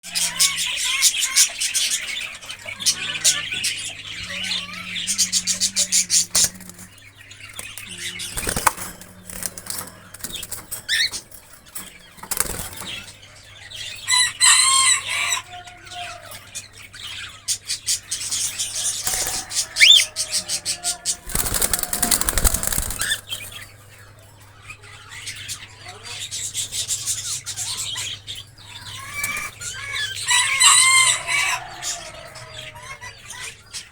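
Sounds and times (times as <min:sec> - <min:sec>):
cockatiels chirping: 0:00.0 - 0:11.3, 0:16.9 - 0:24.1
birds flapping wings: 0:05.0 - 0:07.0, 0:07.6 - 0:13.1, 0:19.0 - 0:20.1, 0:21.1 - 0:23.6.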